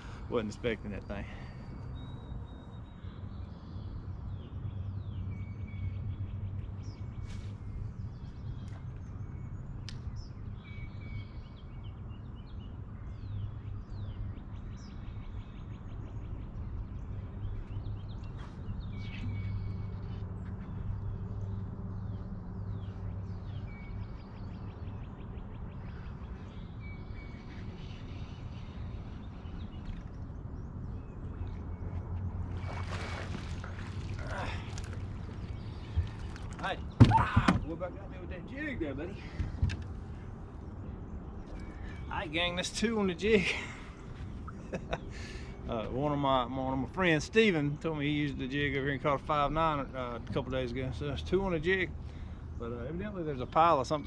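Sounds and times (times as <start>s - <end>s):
songbirds singing: 0.0s - 54.0s
bird chirp-and-trill phrase: 40.1s - 43.6s, 52.5s - 54.0s.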